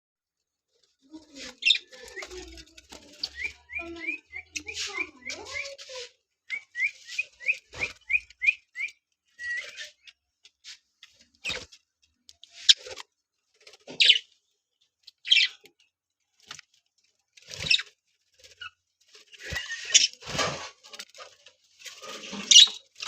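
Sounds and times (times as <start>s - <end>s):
budgerigars chirping and warbling: 1.3s - 6.1s, 13.8s - 14.3s, 15.1s - 15.6s, 17.5s - 20.5s, 22.0s - 23.0s.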